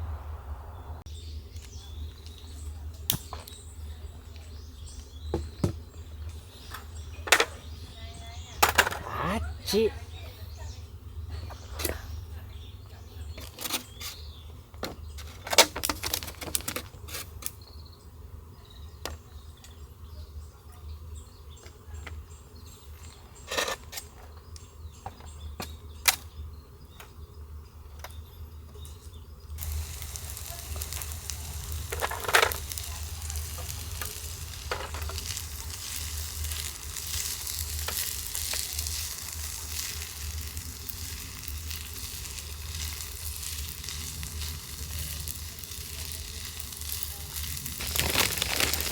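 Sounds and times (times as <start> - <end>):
food sizzling in a hot pan: 29.6 - 48.9.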